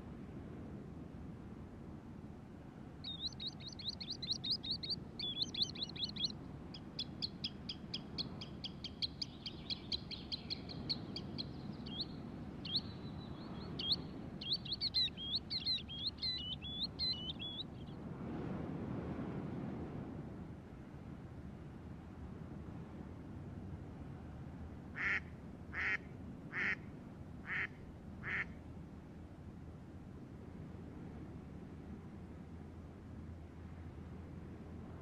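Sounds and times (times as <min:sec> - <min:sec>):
bird chirping in fast trills: 0:03.0 - 0:17.9.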